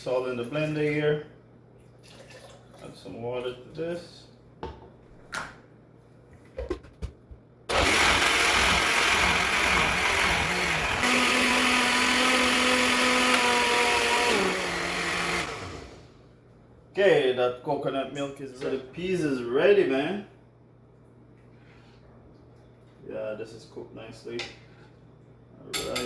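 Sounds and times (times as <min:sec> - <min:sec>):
electric blender blending: 0:07.7 - 0:16.1.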